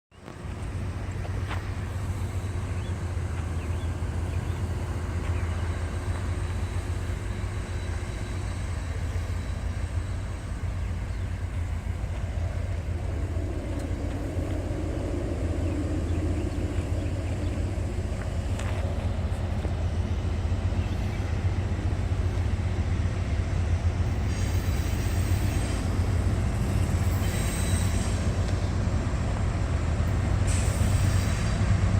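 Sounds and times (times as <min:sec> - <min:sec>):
low engine rumble: 0:00.2 - 0:24.2.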